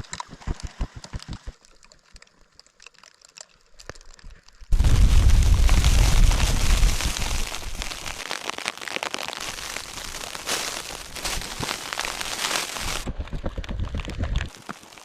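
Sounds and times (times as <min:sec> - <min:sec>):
heavy low wind rumble: 0:04.7 - 0:08.2
steady wind hiss: 0:04.7 - 0:08.2
snow pattering on tent fabric: 0:04.7 - 0:15.0.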